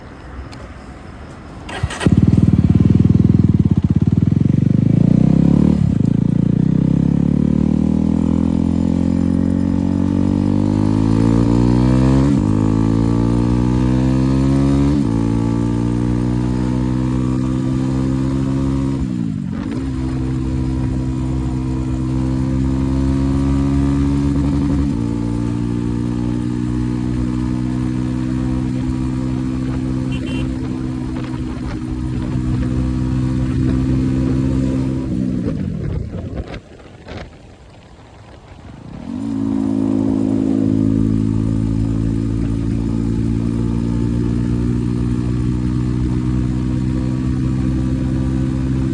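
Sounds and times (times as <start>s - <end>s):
motorcycle engine accelerating: 1.7s - 48.9s.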